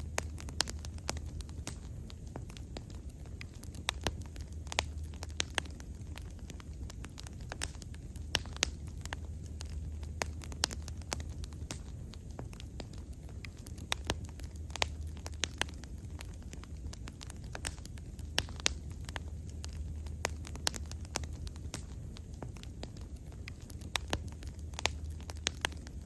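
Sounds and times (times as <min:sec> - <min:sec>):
bonfire crackling and popping: 0:00.0 - 0:26.0.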